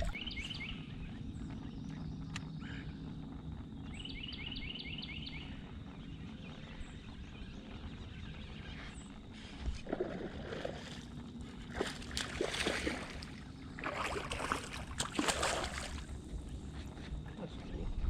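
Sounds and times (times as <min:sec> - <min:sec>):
wind on microphone: 0:00.0 - 0:18.0
fish splashing in water: 0:09.8 - 0:11.1, 0:11.7 - 0:16.1.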